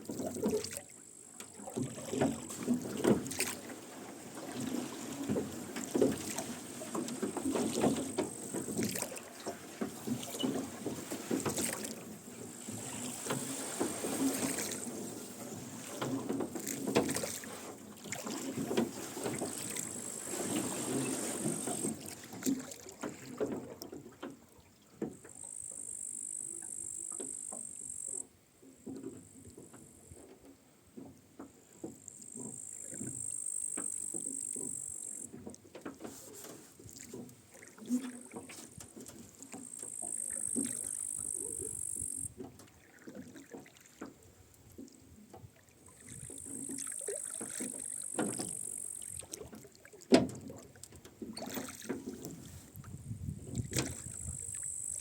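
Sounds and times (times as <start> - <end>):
oars creaking in oarlocks: 0.0 - 55.0
oars splashing in water: 0.0 - 55.0
light knocks on boat: 50.1 - 52.4.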